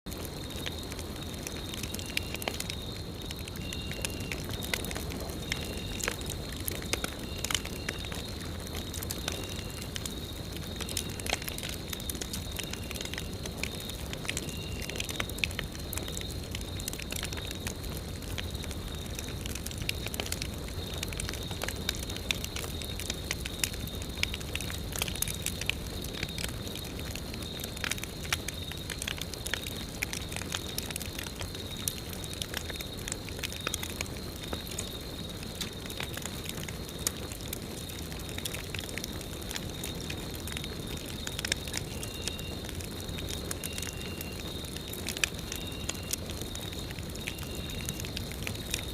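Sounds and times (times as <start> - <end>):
campfire crackling and popping: 0.1 - 48.9.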